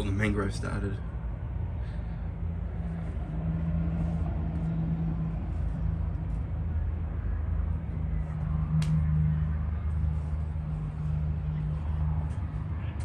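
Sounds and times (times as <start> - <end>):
constant low hum: 0.0 - 13.0
rumble of motor traffic: 0.0 - 13.0.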